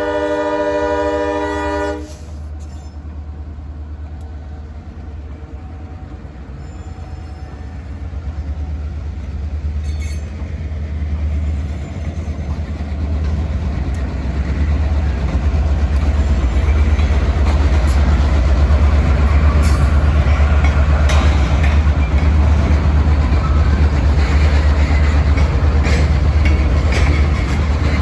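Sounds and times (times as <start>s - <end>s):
freight train rumbling: 0.0s - 28.0s
wheels clicking over rail joints: 12.0s - 28.0s.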